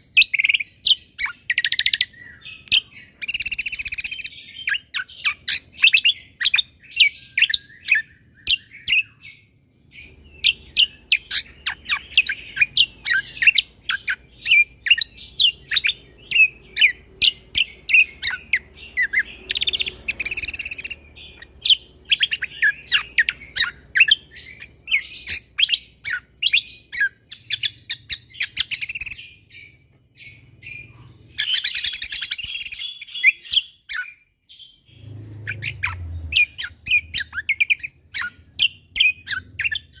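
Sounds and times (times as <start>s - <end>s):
bird singing rapid high chirps: 0.0s - 40.0s
faint low hum: 34.4s - 40.0s.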